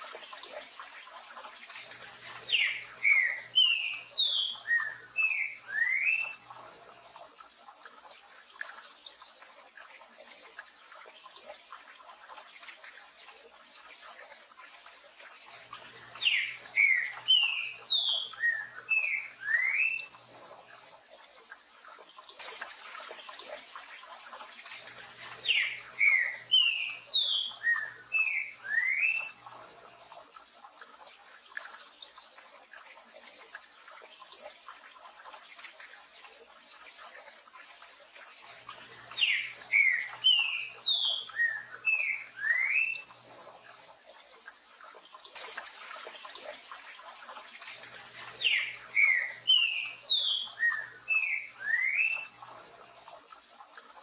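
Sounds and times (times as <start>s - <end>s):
bird singing whistled notes: 2.5s - 6.4s, 16.2s - 20.1s, 25.5s - 29.3s, 39.2s - 43.1s, 48.4s - 52.3s.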